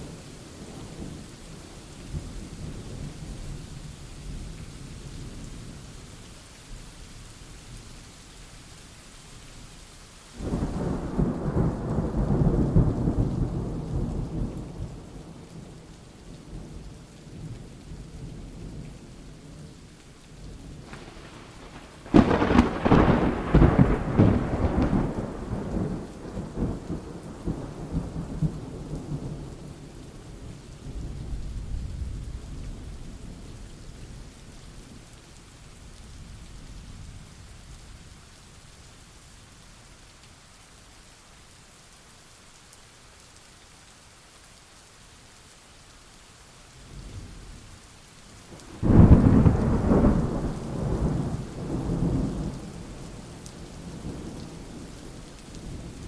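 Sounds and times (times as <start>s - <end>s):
steady rain hiss: 0.0s - 56.0s
thunder cracking and rumbling: 20.8s - 29.6s, 48.7s - 56.0s.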